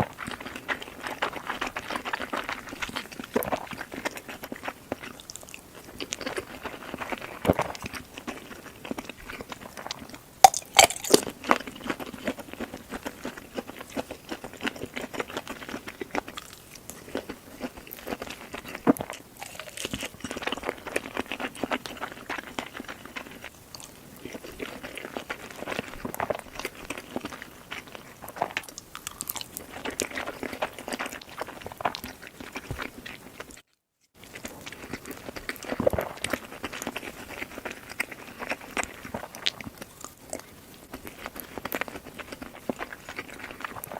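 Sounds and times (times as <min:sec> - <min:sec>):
person chewing and crunching food: 0:00.0 - 0:43.9
wet mouth sounds: 0:09.0 - 0:14.5.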